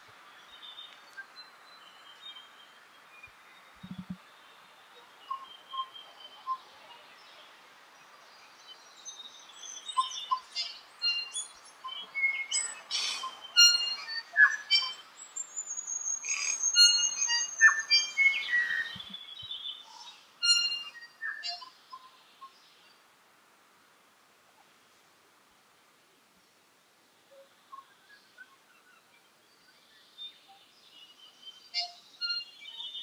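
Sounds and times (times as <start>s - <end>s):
bird singing varied notes: 3.2s - 4.3s, 8.7s - 22.7s, 27.3s - 33.0s.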